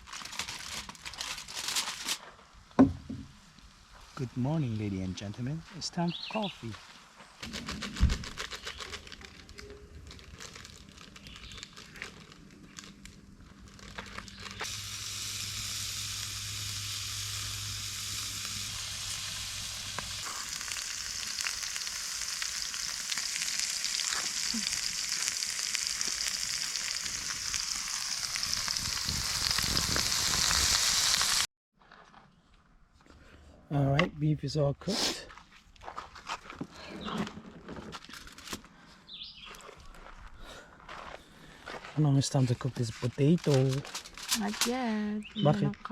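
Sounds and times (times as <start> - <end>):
steak sizzling over fire: 9.4 - 31.5.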